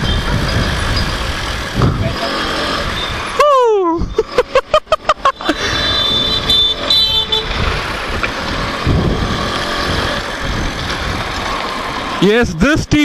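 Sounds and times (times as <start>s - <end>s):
road traffic noise: 0.0s - 13.0s
short pitched toots: 5.4s - 7.7s
low rumble: 6.0s - 11.5s.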